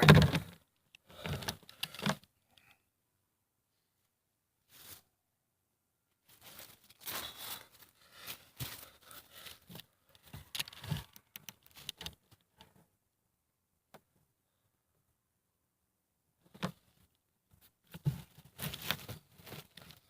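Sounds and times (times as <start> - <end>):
small clicks and knocks: 0.0 - 2.7, 9.6 - 12.8
rustling handling noise: 6.2 - 12.6, 16.6 - 20.0.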